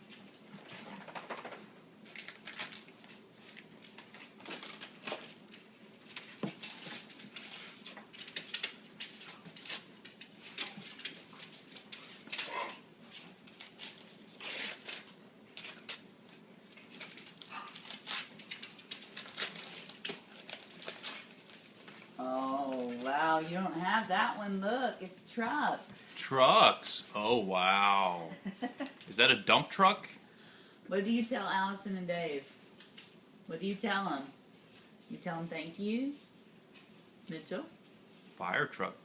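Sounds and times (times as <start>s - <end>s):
wrapping paper tearing and crinkling: 2.0s - 12.5s, 13.1s - 23.5s.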